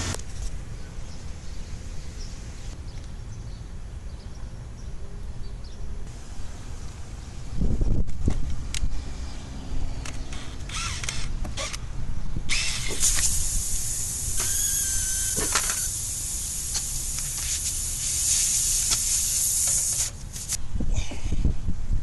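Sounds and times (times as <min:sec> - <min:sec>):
air hissing into car tire: 0:12.9 - 0:20.6.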